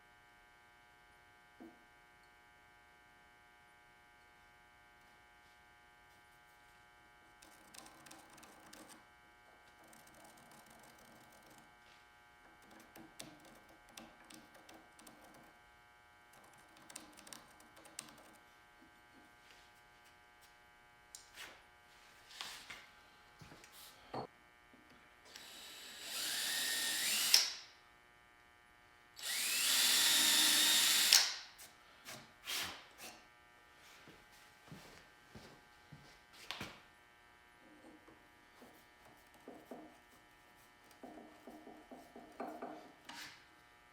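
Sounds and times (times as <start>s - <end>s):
electric power tool whining: 25.3s - 27.6s, 29.2s - 31.4s.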